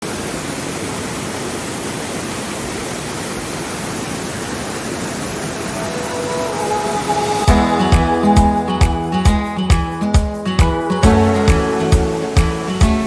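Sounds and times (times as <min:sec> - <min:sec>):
waterfall rushing: 0:00.0 - 0:10.0, 0:11.0 - 0:13.0
music: 0:05.9 - 0:13.0.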